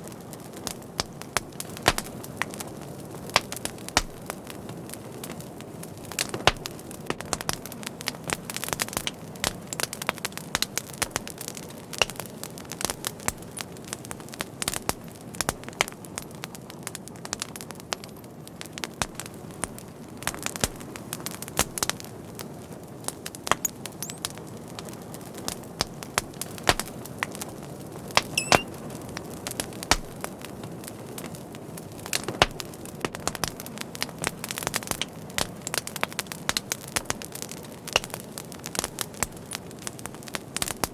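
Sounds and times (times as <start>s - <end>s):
fire crackling and popping: 0.0s - 40.9s
high whistle: 28.3s - 28.7s.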